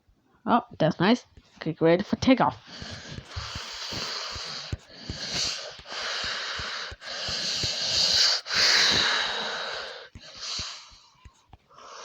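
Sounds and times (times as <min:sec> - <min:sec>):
breathy hissing whooshes: 0:02.7 - 0:11.1.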